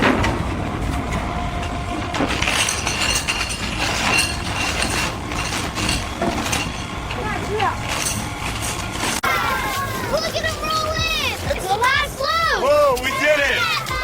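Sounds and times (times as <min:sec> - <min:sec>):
heavy machinery rumbling: 0:00.0 - 0:12.9
metallic clinks and rattles: 0:01.7 - 0:09.2.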